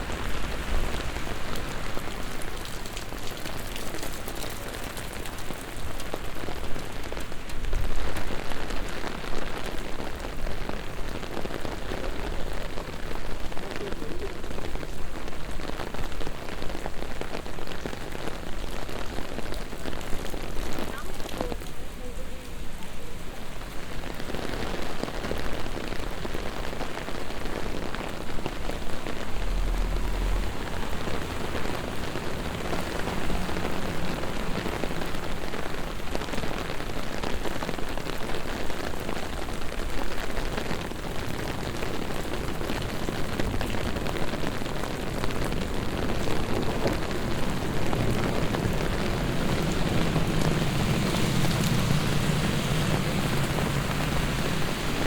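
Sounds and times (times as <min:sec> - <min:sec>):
heavy rain on pavement: 0:00.0 - 0:55.0
low rumble: 0:28.4 - 0:34.8, 0:46.4 - 0:55.0.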